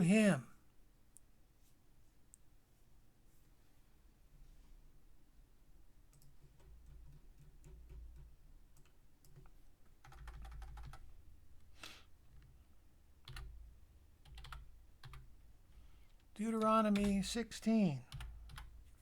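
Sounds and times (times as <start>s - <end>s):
faint keyboard typing: 6.0s - 19.0s.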